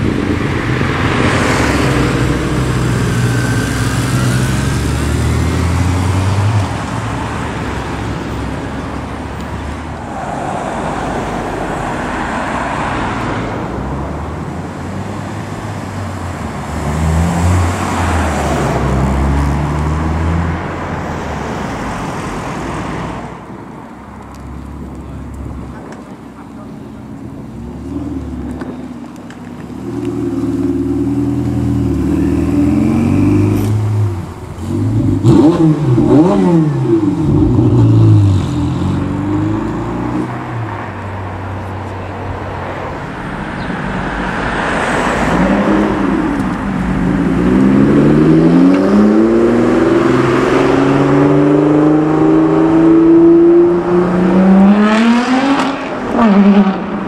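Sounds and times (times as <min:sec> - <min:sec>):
car engine revving and accelerating: 0:00.7 - 0:07.1, 0:15.8 - 0:20.8, 0:29.7 - 0:41.0, 0:43.9 - 0:57.0.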